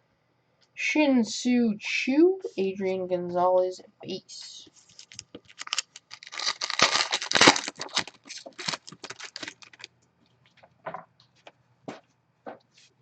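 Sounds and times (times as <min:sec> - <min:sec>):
card pack wrapper tearing and crinkling: 0:04.9 - 0:09.9.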